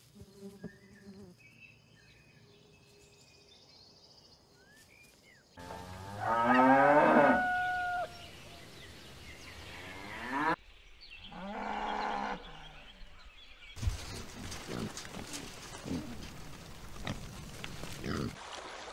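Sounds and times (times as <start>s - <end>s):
cattle mooing: 5.6s - 8.1s.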